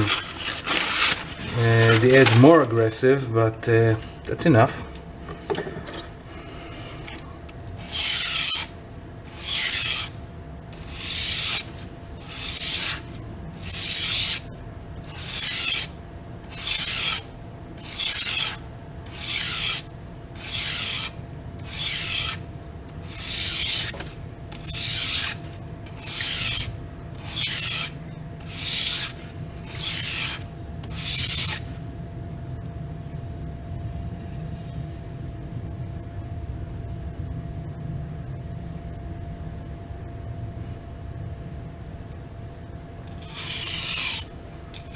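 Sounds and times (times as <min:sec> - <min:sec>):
knife rasping on sharpening board: 0:07.8 - 0:08.7, 0:09.3 - 0:10.1, 0:10.8 - 0:13.0, 0:13.6 - 0:14.4, 0:15.1 - 0:15.9, 0:16.5 - 0:19.8, 0:20.4 - 0:21.1, 0:21.7 - 0:22.4, 0:23.0 - 0:25.4, 0:26.0 - 0:31.6, 0:43.2 - 0:44.9.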